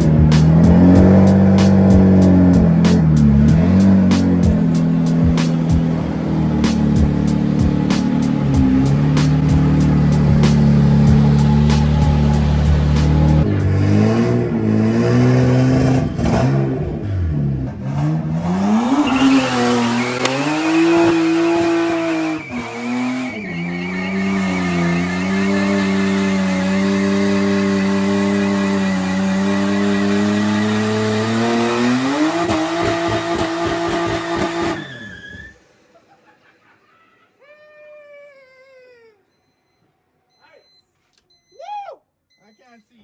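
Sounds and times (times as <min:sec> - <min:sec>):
car engine revving: 0:00.0 - 0:35.5
tire squeal: 0:00.8 - 0:16.9, 0:17.9 - 0:35.8.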